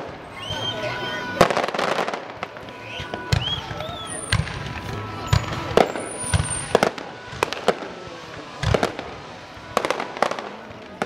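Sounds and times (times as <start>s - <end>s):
fireworks booming and cracking: 0.0s - 11.0s.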